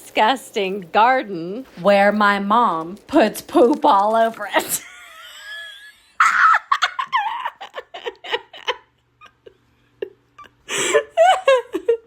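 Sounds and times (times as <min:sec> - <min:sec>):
person laughing: 0:04.6 - 0:12.0.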